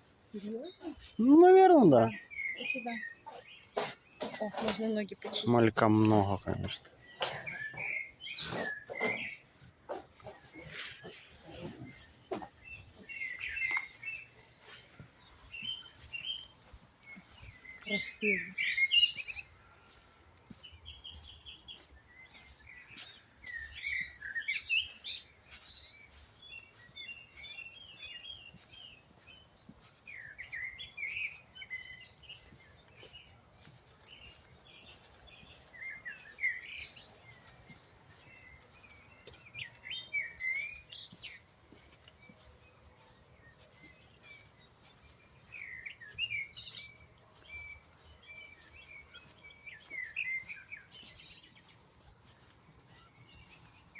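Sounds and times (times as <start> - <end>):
songbirds warbling: 0.0 - 53.9.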